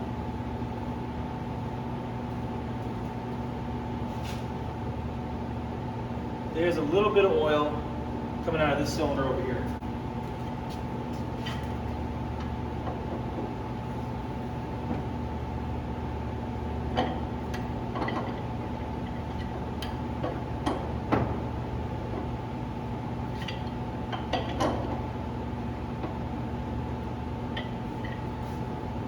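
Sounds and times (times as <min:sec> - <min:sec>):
steady mechanical hum: 0:00.0 - 0:29.0.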